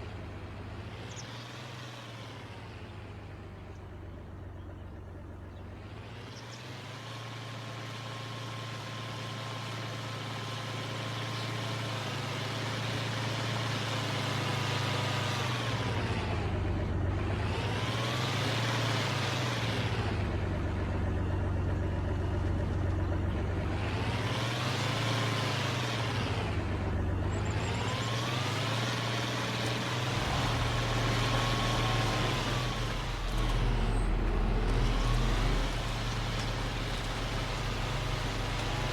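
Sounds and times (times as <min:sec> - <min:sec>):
heavy engine droning: 0:15.8 - 0:38.9
engine whine rising and falling: 0:27.4 - 0:38.9.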